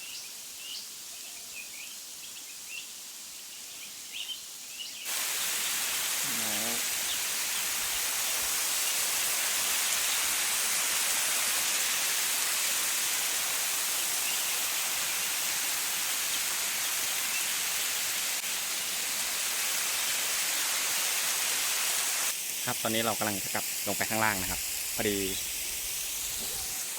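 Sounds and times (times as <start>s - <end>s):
waterfall rushing: 5.1s - 22.3s.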